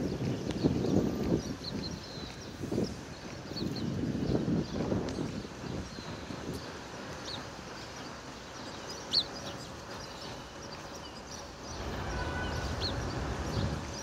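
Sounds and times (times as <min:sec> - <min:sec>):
city traffic hum: 0:00.0 - 0:14.0
high bird chirps: 0:08.8 - 0:14.0.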